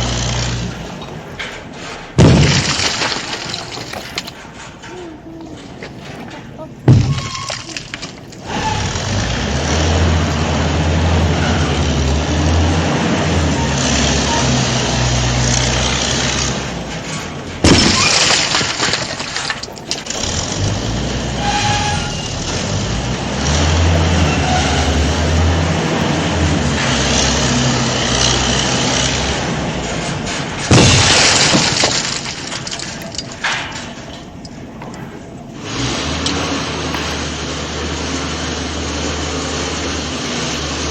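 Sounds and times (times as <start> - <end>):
engine-like running hum and hiss: 0.0 - 40.9
sharp loud knocks: 1.4 - 5.1, 6.8 - 11.1, 22.4 - 34.0.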